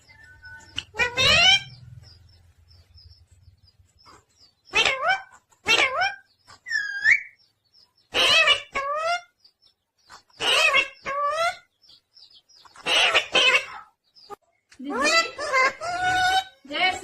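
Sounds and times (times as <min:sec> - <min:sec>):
parrot calls and chatter: 0:00.0 - 0:17.0.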